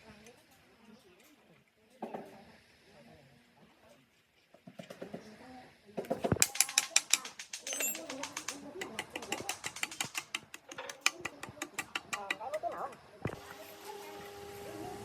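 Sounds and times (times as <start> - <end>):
fast mechanical clicks: 6.3 - 13.4.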